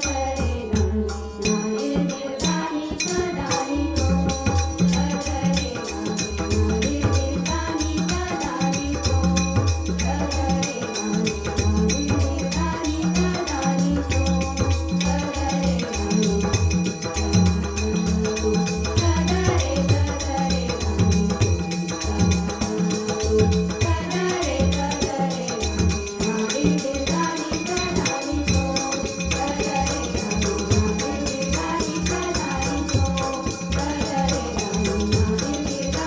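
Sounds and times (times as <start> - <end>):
jingling rattling percussion: 0.0 - 36.0
hand drum beat: 11.4 - 36.0.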